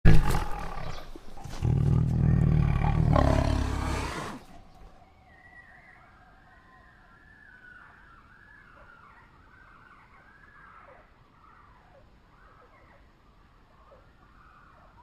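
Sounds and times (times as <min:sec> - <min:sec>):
tiger roaring: 0:00.0 - 0:04.9.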